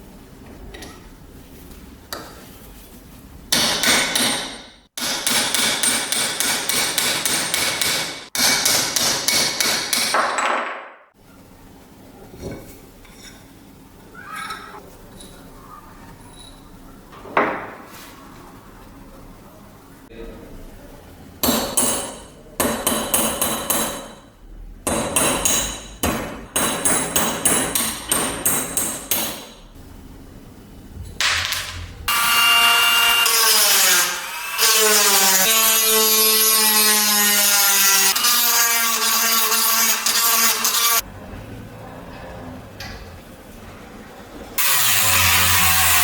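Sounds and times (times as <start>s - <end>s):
hand tool strikes: 3.5s - 10.5s.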